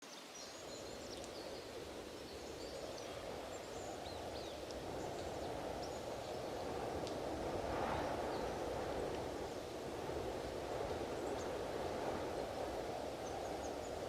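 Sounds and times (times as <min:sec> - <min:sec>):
wind rushing: 0:01.7 - 0:14.0.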